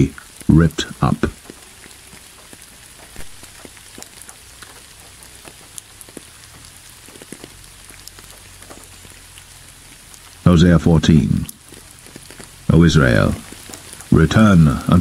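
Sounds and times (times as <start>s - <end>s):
low steady hum: 0.0s - 15.0s
steady rain falling: 0.0s - 15.0s.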